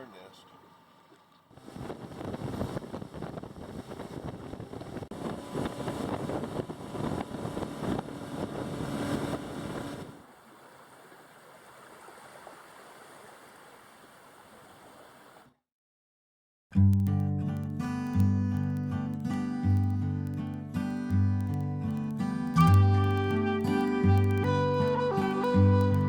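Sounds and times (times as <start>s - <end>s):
wind on microphone: 1.5s - 10.2s.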